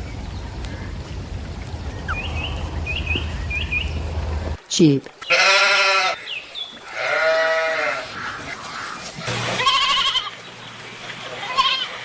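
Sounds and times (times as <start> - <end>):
sheep bleating: 5.3 - 6.2, 6.9 - 8.1, 9.6 - 10.4.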